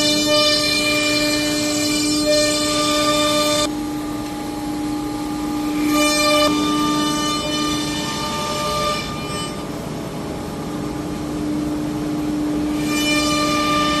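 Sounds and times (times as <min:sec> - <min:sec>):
router spindle high-pitched whine: 0:00.0 - 0:03.8, 0:04.9 - 0:09.8.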